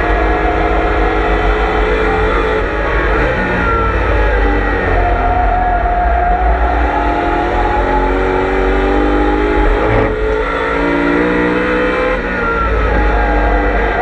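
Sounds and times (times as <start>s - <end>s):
car engine running hard: 0.0s - 14.0s
gear change: 0.0s - 14.0s.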